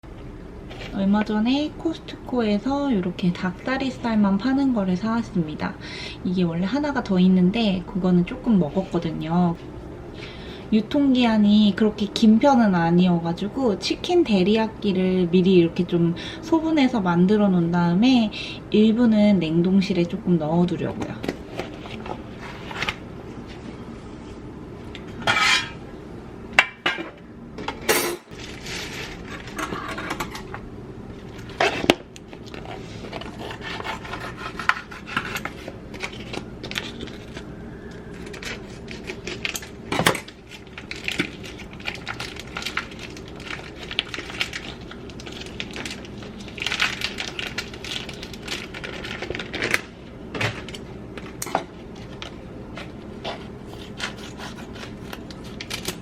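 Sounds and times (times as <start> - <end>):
steady low hum: 0.0 - 56.0
utensils and dishes clattering: 26.7 - 30.5.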